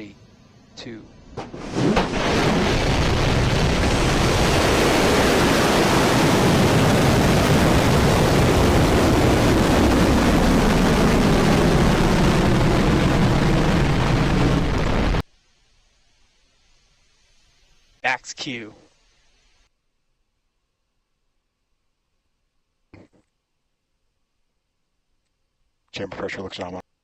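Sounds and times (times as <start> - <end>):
rocket engines roaring at liftoff: 0.7 - 15.2.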